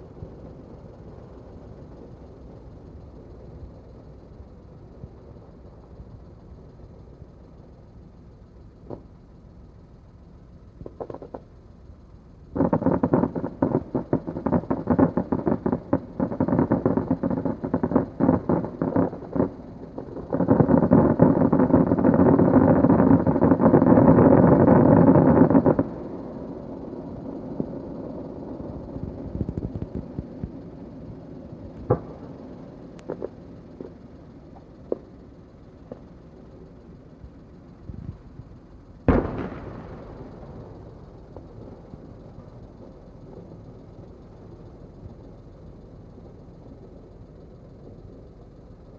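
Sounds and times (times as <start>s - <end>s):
fireworks banging: 10.8s - 11.5s, 12.6s - 26.2s, 28.9s - 30.8s, 31.6s - 36.7s, 37.7s - 45.2s.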